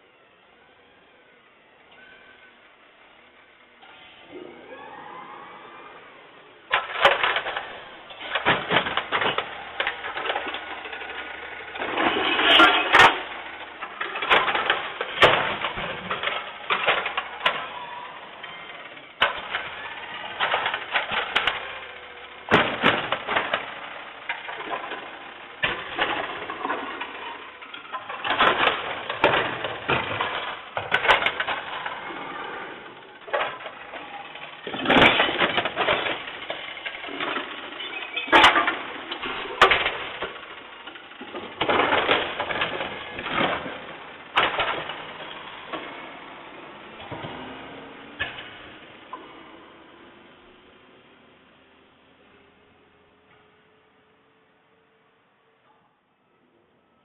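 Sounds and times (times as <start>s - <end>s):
knocks and rattles: 6.7s - 49.4s.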